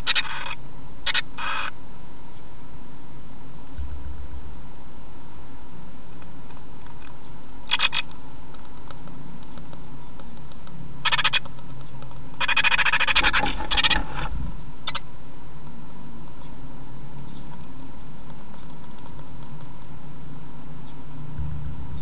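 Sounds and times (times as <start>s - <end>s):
birds scratching in nest box: 11.0s - 15.0s.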